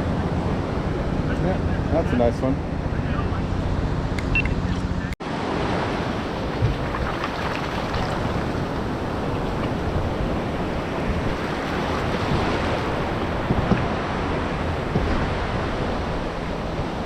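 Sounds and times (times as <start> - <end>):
ocean surf washing on beach: 5.2 - 17.0
wind on microphone: 5.4 - 17.0.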